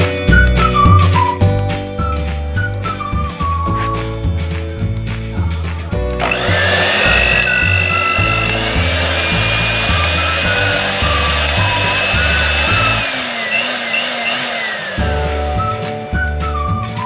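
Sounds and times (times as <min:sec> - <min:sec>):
whistled melody with bass: 0:00.0 - 0:17.0
blender motor running: 0:06.2 - 0:15.7.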